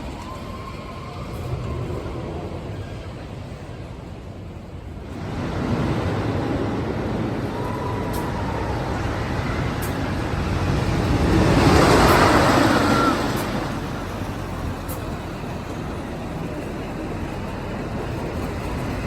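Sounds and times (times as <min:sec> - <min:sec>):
miniature train running: 0:00.0 - 0:19.0.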